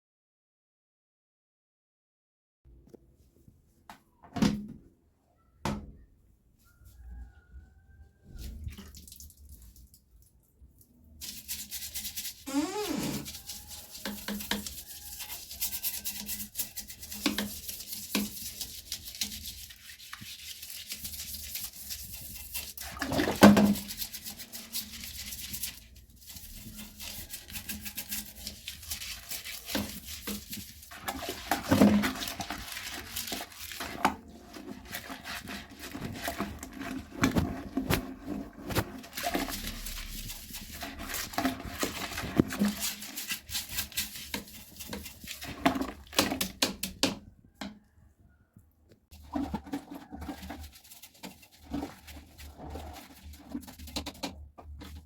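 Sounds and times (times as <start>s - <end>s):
brushing and rubbing: 11.2s - 47.1s, 49.1s - 55.0s.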